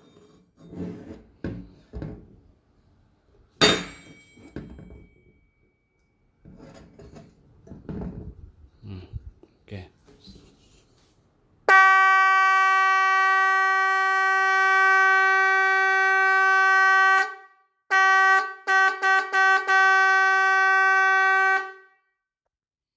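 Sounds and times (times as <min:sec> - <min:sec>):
electric boat horn blasts: 0:11.7 - 0:22.0.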